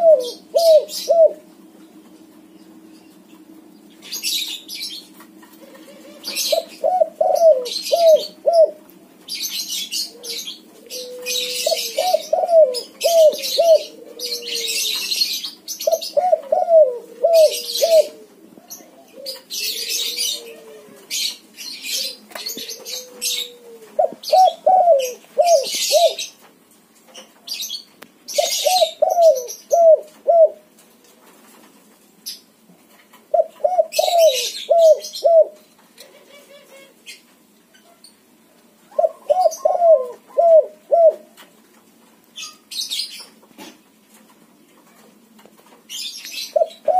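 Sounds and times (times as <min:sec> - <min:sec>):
dove cooing: 0:00.0 - 0:01.7, 0:04.1 - 0:26.4, 0:28.3 - 0:30.7, 0:33.3 - 0:37.1, 0:38.9 - 0:41.4, 0:46.3 - 0:46.9.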